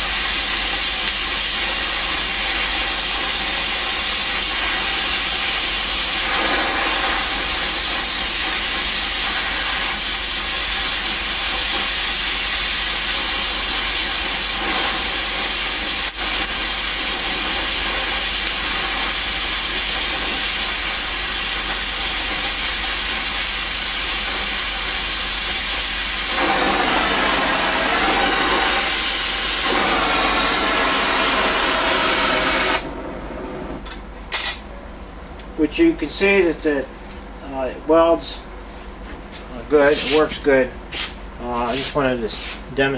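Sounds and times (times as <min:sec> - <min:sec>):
torch flame hissing: 0:00.0 - 0:33.9.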